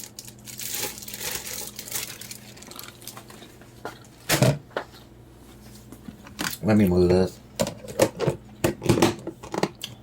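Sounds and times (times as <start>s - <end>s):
packaging crinkling: 0.0s - 3.4s.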